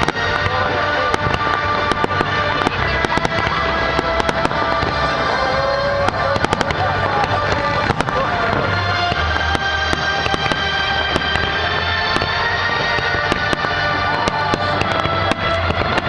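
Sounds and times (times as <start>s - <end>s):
fireworks bursting and crackling: 0.0s - 16.0s
music: 0.0s - 16.0s.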